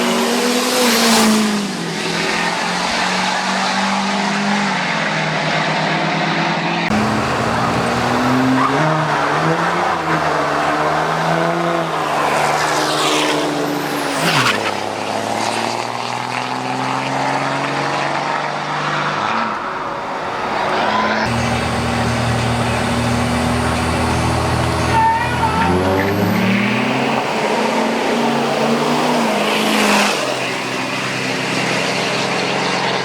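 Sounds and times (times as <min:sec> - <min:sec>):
racing engine at full throttle: 0:00.0 - 0:33.0.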